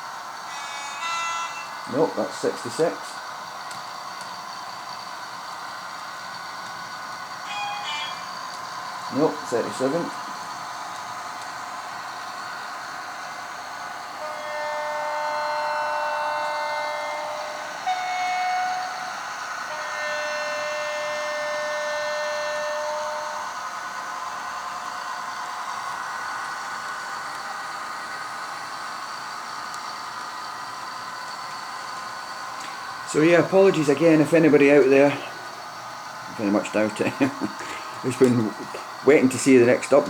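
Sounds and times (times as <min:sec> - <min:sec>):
model locomotive engine sound: 0:00.0 - 0:40.0
model train horn through speaker: 0:00.5 - 0:03.1, 0:07.4 - 0:08.4, 0:14.0 - 0:23.6
steady hiss: 0:22.7 - 0:40.0.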